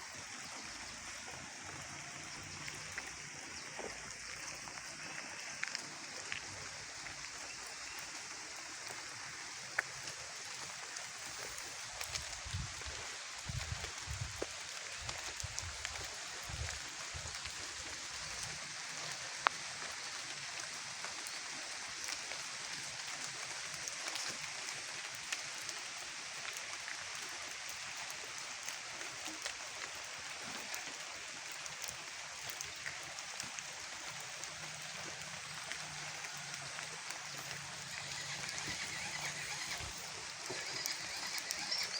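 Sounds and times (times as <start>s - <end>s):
small scattered ticks: 0.0s - 41.9s
even hiss: 37.0s - 41.9s.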